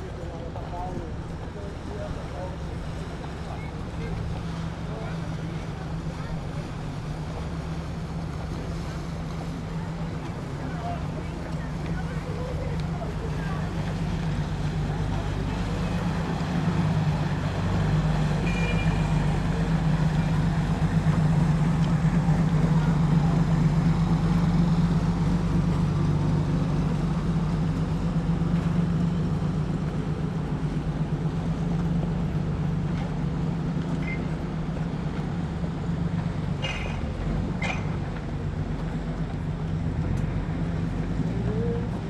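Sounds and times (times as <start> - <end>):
large vehicle engine droning: 0.0 - 42.0
faint high squeaks: 34.0 - 34.3.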